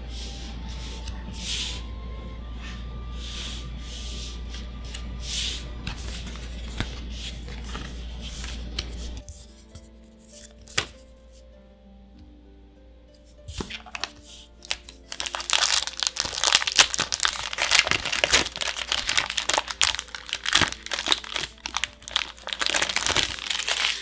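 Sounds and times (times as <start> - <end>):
soft background music: 0.0 - 24.0
foil wrapper crinkling: 13.6 - 24.0.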